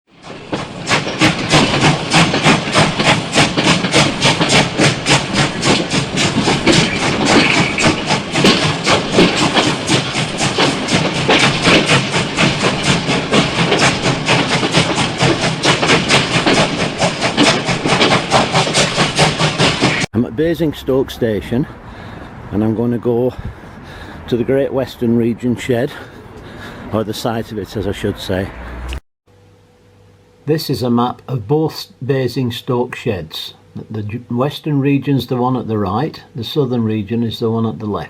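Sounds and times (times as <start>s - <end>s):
steam locomotive exhaust beats: 0.1s - 38.0s
steam hissing: 0.2s - 20.1s.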